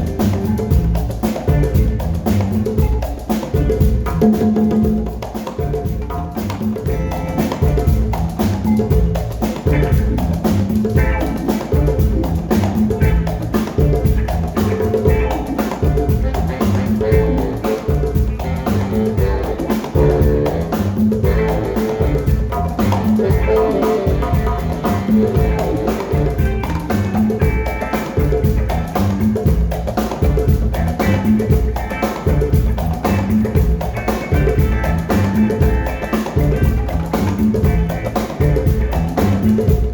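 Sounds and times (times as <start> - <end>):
live band playing: 0.0 - 39.9.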